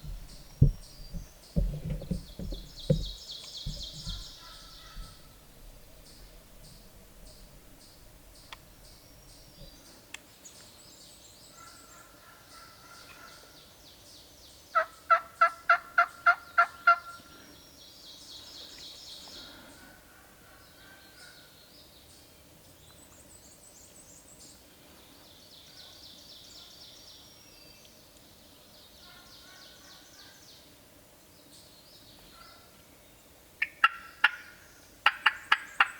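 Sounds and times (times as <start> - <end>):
faint turkey calls: 0.0 - 9.9, 11.5 - 13.6, 14.7 - 17.6, 29.0 - 30.4, 33.6 - 35.9
songbirds chirping: 0.0 - 35.9
turkey yelping: 33.7 - 34.4.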